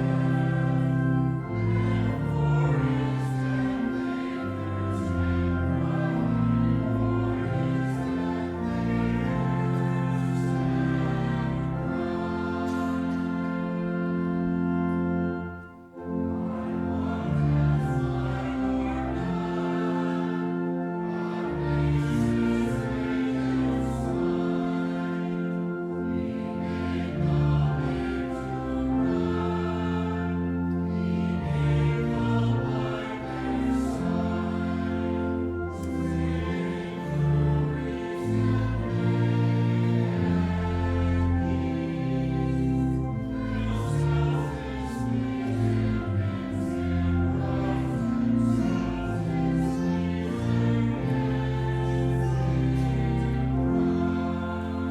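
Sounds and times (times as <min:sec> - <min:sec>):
sustained hymn chords: 0:00.0 - 0:54.9
voices singing: 0:00.0 - 0:54.9.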